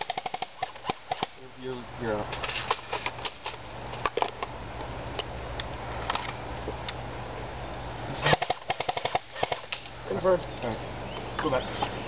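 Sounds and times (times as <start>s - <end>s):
airsoft rifle shots clicking: 0.0s - 1.4s, 8.2s - 9.9s
steady low hum: 0.0s - 12.0s.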